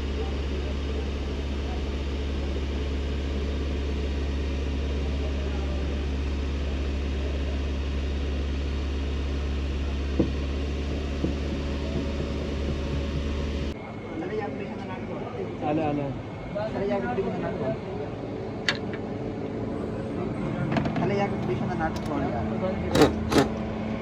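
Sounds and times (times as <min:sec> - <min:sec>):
car engine idling: 0:00.0 - 0:13.8
sharp click: 0:23.0 - 0:23.6.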